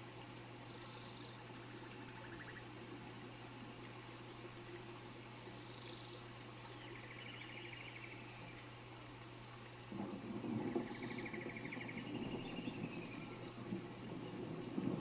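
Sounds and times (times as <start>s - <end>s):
rain hissing: 0.0s - 15.0s
distant thunder rumbling: 9.9s - 15.0s.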